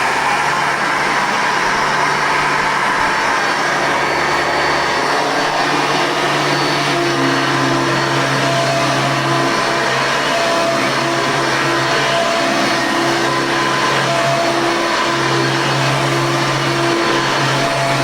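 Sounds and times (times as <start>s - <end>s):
vacuum cleaner motor whirring: 0.0s - 18.0s.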